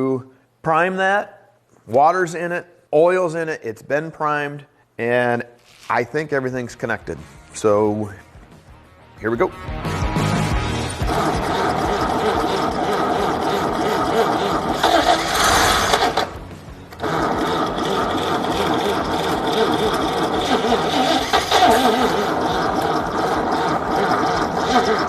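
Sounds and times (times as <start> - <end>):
engine cranking and clattering: 10.9 - 25.0.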